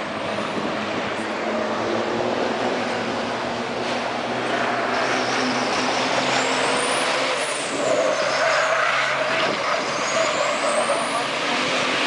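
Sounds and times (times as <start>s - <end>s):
truck diesel engines racing: 0.0s - 12.0s.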